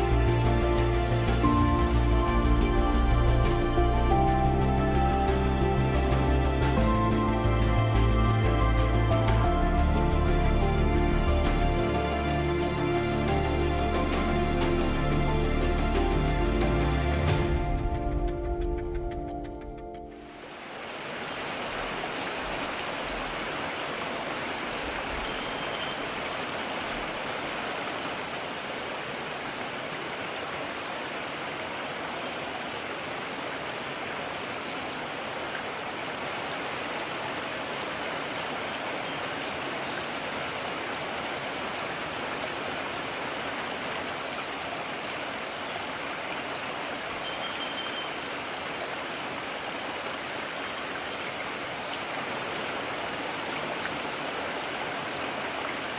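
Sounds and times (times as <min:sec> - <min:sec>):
stream rushing over rocks: 0:20.1 - 0:55.9
faint high chirps: 0:47.2 - 0:48.2.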